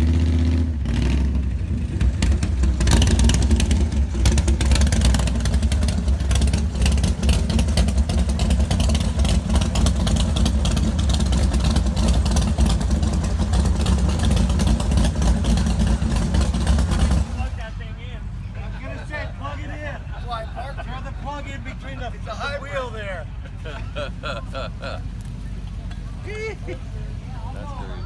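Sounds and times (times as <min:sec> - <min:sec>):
car engine running: 0:00.0 - 0:18.5.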